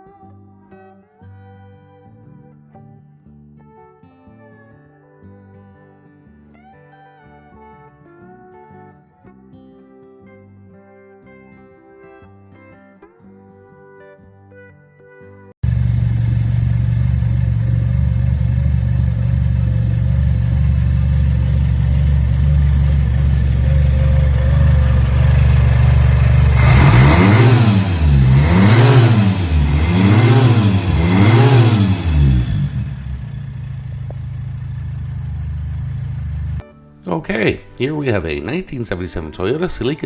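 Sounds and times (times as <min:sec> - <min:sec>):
car engine idling and revving: 0:15.6 - 0:36.6.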